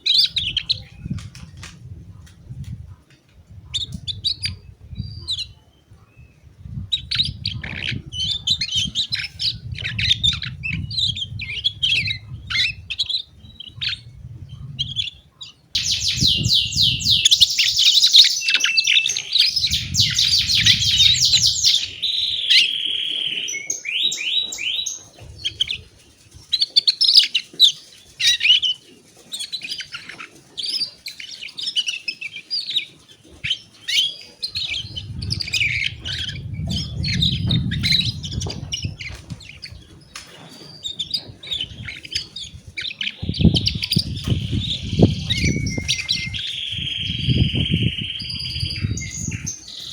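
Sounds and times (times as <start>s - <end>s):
canary singing: 15.8s - 25.7s, 40.6s - 49.9s.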